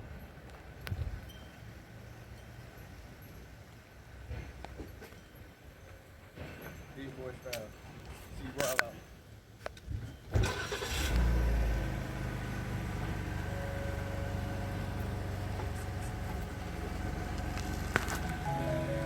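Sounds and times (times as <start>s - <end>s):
car engine starting and idling: 10.3s - 19.0s
music: 18.2s - 19.0s.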